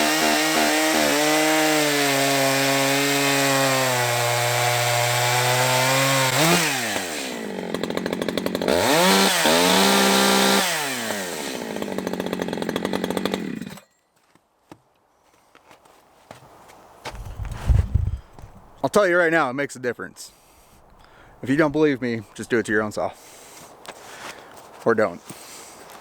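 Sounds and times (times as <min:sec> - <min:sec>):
chainsaw revving and idling: 0:00.0 - 0:13.8.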